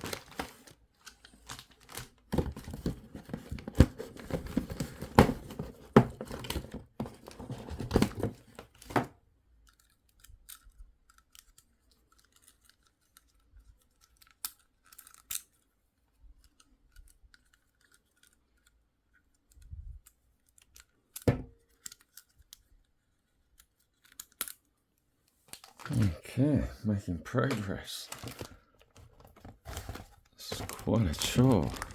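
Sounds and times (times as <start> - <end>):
plastic packaging crinkling and tearing: 0.0 - 9.0, 25.5 - 26.2, 27.3 - 31.9.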